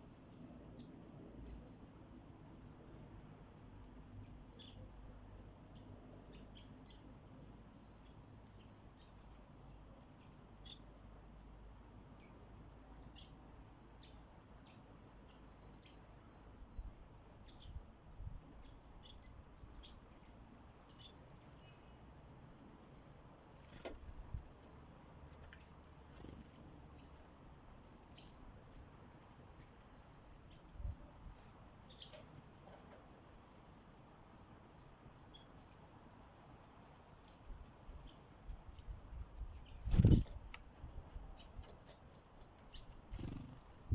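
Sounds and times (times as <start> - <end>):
sparrows chirping: 0.0 - 1.8, 4.0 - 33.4, 34.1 - 43.9.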